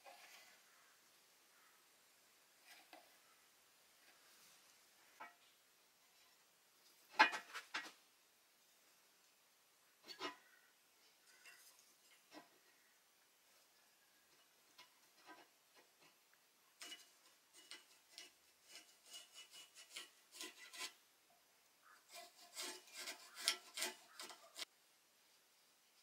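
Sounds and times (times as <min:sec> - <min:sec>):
steel pieces scraping: 0:16.8 - 0:21.0, 0:22.1 - 0:24.7.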